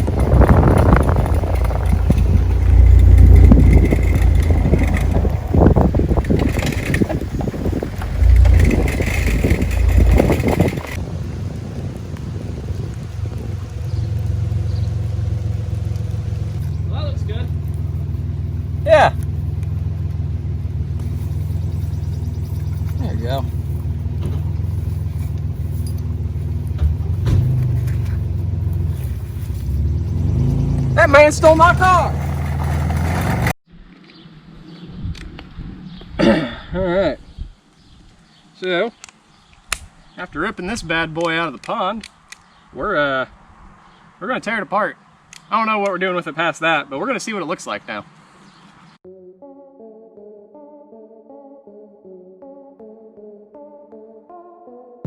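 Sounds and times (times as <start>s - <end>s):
wind buffeting microphone: 0.0s - 16.9s, 34.6s - 38.1s
vehicle engine rumbling: 0.0s - 33.6s.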